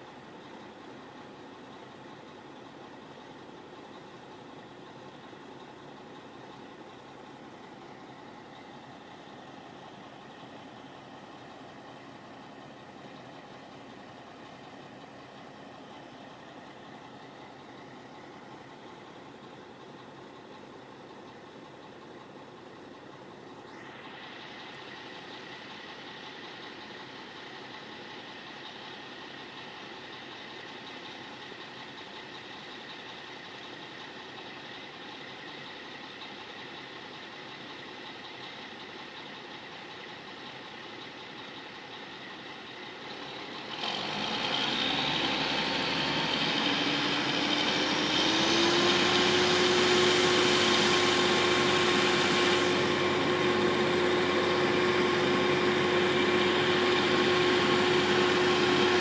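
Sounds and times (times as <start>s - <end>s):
air conditioner motor starting up: 43.9s - 59.0s
low machine hum: 49.5s - 59.0s.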